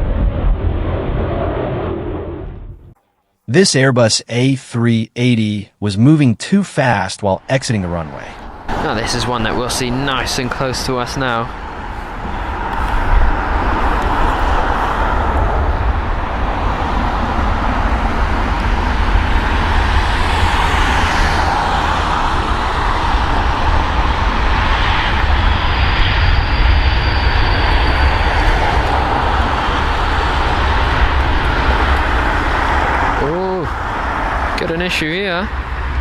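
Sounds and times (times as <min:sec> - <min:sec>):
jet engines roaring: 0:00.0 - 0:03.0, 0:07.6 - 0:36.0
thin high whine: 0:22.2 - 0:36.0.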